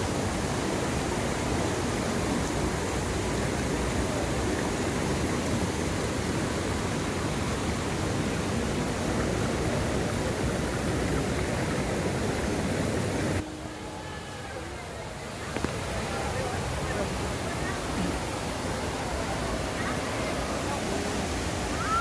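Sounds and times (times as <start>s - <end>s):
stream water rushing over rocks: 0.0s - 22.0s.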